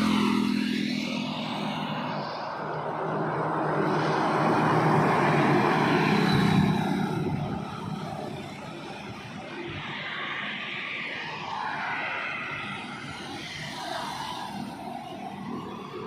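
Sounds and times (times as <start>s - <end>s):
truck passing by: 0.0s - 8.9s.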